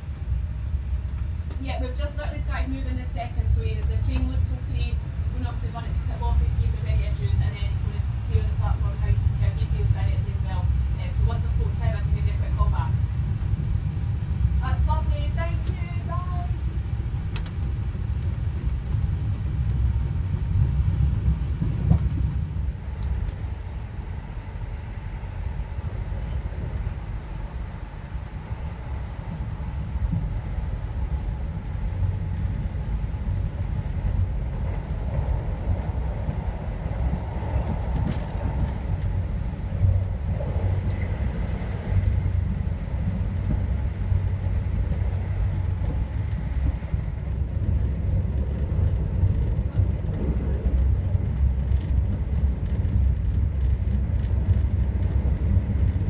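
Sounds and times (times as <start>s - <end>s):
train rumble from inside carriage: 0.0s - 56.0s.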